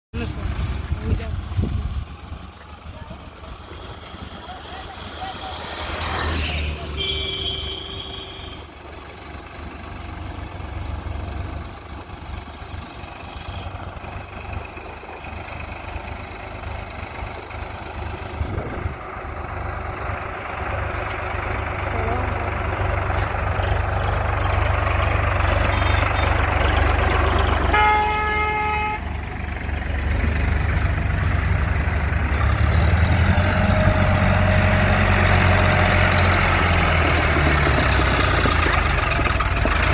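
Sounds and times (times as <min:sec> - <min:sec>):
tractor diesel engine running: 0:00.1 - 0:39.9
vehicle horn: 0:06.8 - 0:08.7, 0:25.6 - 0:26.4, 0:27.6 - 0:29.2.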